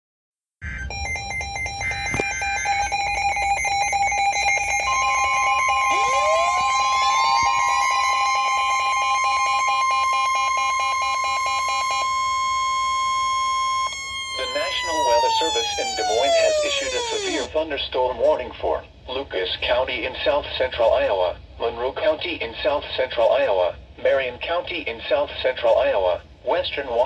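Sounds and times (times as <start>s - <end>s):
electronic two-tone data chirps: 0.6s - 17.5s
steady warning alarm tone: 0.6s - 17.5s
rising siren-like glides: 3.6s - 17.5s.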